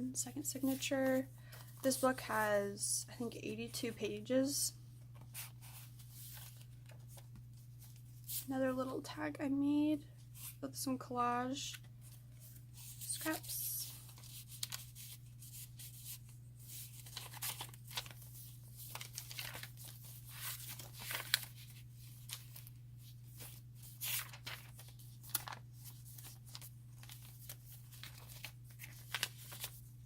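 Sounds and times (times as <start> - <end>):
paper pages rustling: 5.2 - 8.5, 11.8 - 30.0.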